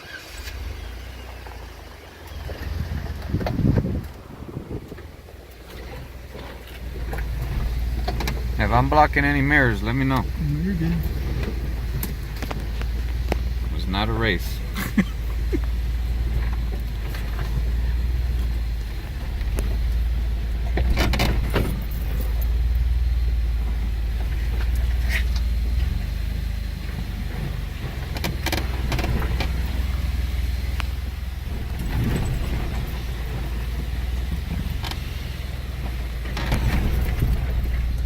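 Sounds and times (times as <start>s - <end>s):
vehicle engine rumble: 0.0s - 38.0s
knocks and rattles: 3.2s - 22.9s, 27.0s - 30.0s, 31.4s - 38.0s.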